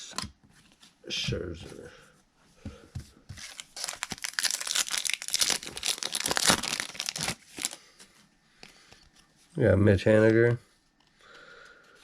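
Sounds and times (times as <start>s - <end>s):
wrapper tearing and crinkling: 3.4s - 7.8s.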